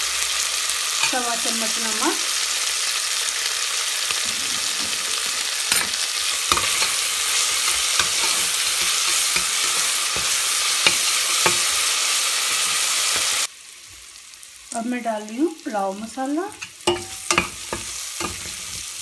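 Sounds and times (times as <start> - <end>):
food sizzling in oil: 0.0 - 19.0
steel spoon scraping pot: 4.1 - 13.4, 16.6 - 19.0.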